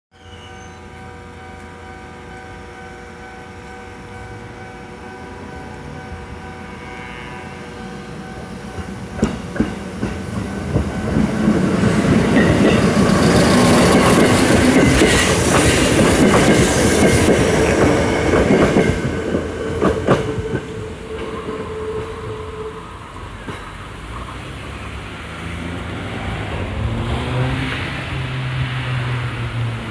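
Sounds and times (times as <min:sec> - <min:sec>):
crossing warning bell ringing: 0:00.1 - 0:23.8
train wheels clacking: 0:08.0 - 0:22.4.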